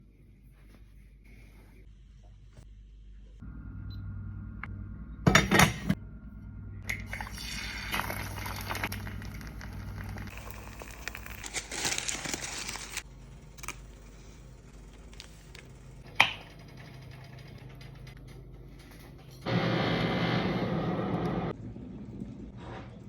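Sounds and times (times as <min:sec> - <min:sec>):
low steady hum: 0:00.0 - 0:11.6
rustling and crinkling: 0:08.7 - 0:13.0.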